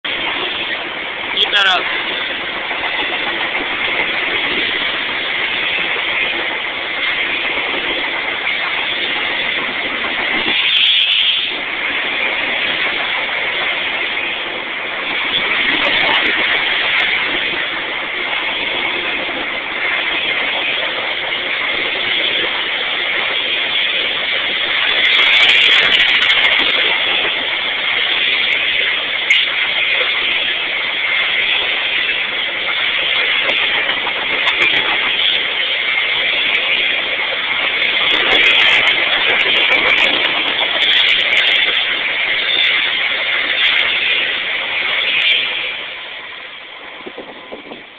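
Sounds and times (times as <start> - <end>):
train rushing past: 0.0 - 47.9.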